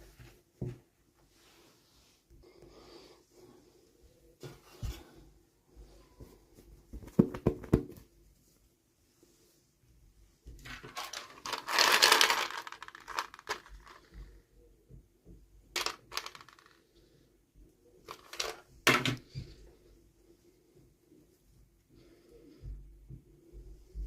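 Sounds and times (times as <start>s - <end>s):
packaging crackling rustle: 10.7s - 14.0s.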